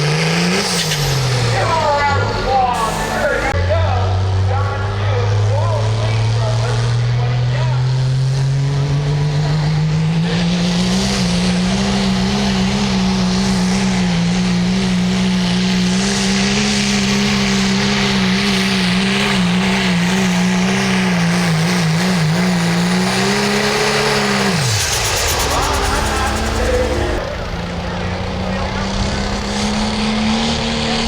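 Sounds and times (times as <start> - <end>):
hiss from tyres and track: 0.0 - 3.6, 11.2 - 27.6
tractor engine droning at full throttle: 0.0 - 31.0.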